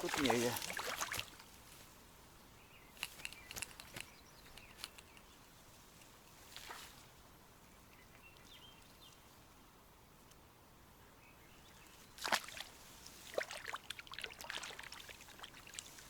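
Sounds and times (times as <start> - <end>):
soft rustle: 0.0 - 7.4, 11.8 - 13.5, 15.0 - 16.0.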